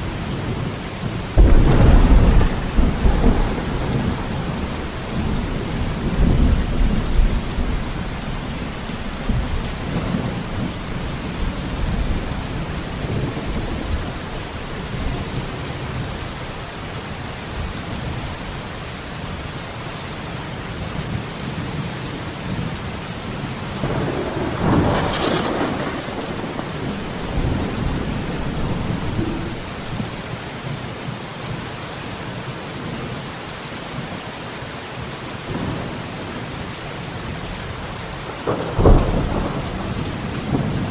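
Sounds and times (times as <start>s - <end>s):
thunder rumbling: 0.0s - 16.2s, 23.6s - 30.3s, 37.4s - 40.9s
heavy rain in forest: 0.0s - 40.9s.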